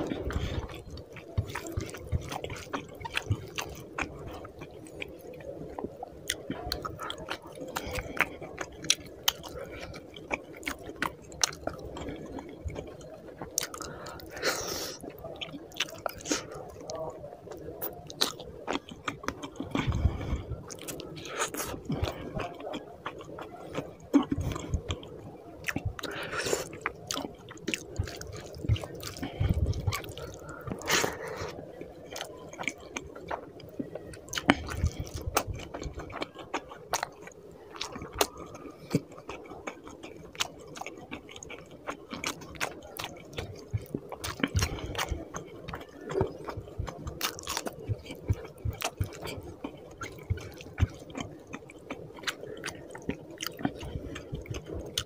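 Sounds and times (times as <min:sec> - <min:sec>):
wet chewing mouth sounds: 0:00.0 - 0:55.0.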